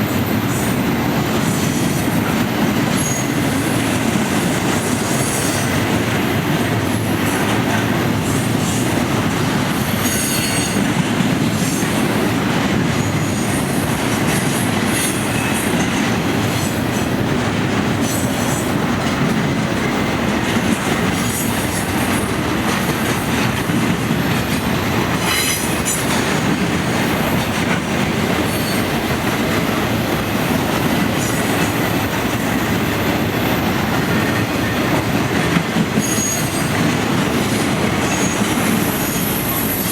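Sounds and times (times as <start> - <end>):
freight train wheels on track: 0.0 - 39.9
wheels squealing against rail: 1.5 - 3.8, 4.4 - 5.8, 9.7 - 11.0, 13.0 - 13.8, 14.4 - 16.0, 24.2 - 27.5, 28.4 - 29.0, 35.9 - 36.9, 37.5 - 39.9.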